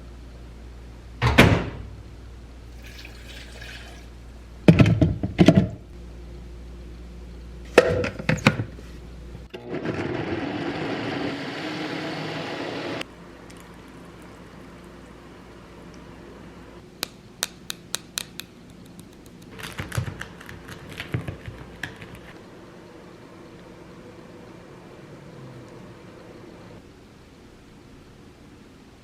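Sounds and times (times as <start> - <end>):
water running: 2.7 - 4.2.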